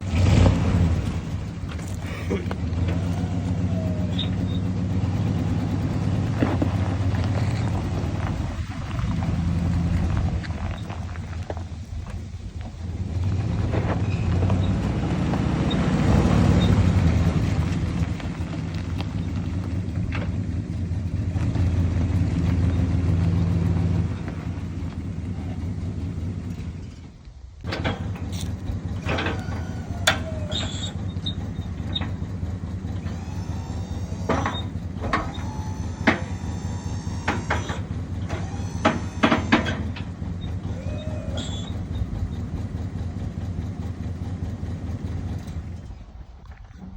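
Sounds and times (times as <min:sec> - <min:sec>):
truck engine running: 0:00.0 - 0:46.9
high squeaks: 0:01.7 - 0:11.2, 0:15.6 - 0:17.8, 0:27.8 - 0:42.9.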